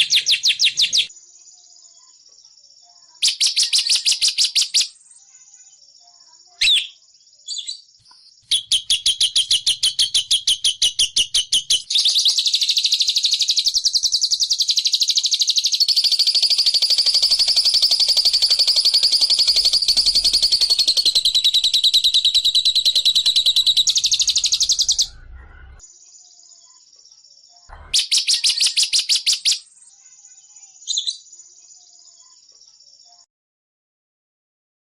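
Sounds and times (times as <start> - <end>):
high-pitched bird trilling: 3.2 - 5.0, 6.6 - 7.9, 8.5 - 25.8, 27.8 - 29.8, 30.9 - 31.3.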